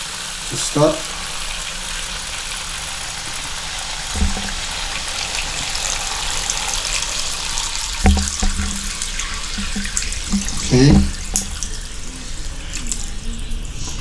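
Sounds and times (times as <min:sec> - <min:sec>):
water running from faucet: 0:00.0 - 0:14.0
low pipe knocks: 0:04.1 - 0:04.9, 0:08.0 - 0:11.7.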